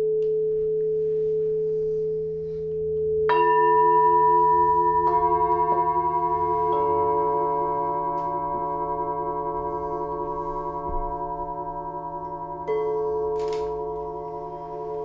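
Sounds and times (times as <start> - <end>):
singing bowls ringing: 0.0 - 15.0.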